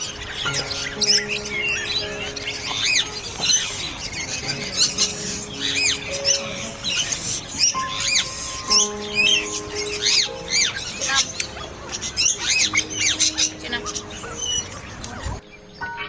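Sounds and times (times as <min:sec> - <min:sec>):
background music with held notes: 0:00.0 - 0:16.0
birds chirping: 0:00.0 - 0:16.0.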